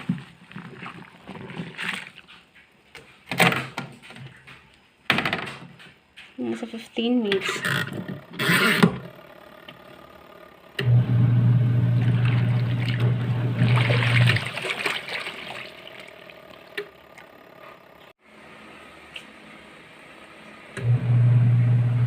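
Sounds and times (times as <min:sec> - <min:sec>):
water and laundry sloshing: 0:00.0 - 0:03.3, 0:11.7 - 0:17.4
washing machine motor humming: 0:07.2 - 0:18.1, 0:20.7 - 0:22.0.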